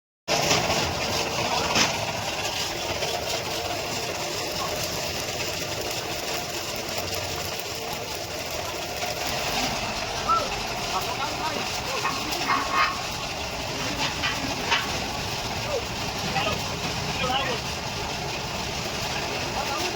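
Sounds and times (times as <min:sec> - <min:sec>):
engine knock: 0:00.3 - 0:19.9
tractor diesel engine running: 0:00.3 - 0:19.9.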